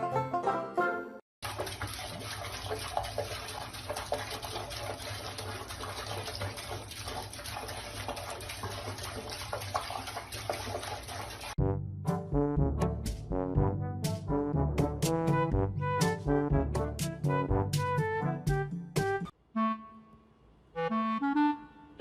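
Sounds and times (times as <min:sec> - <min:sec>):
running water rushing: 0:01.4 - 0:11.6.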